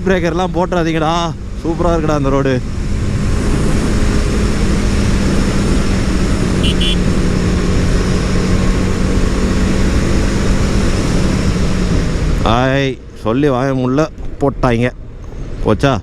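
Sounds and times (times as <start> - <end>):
motorcycle engine drone: 0.0 - 15.7
short high-pitched beeps: 6.6 - 7.0.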